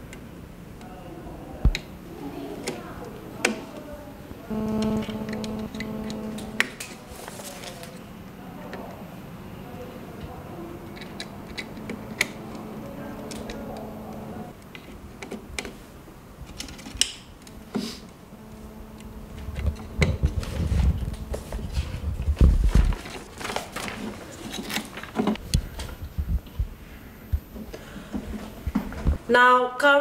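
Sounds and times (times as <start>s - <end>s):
wire connectors clicking: 10.9s - 15.7s.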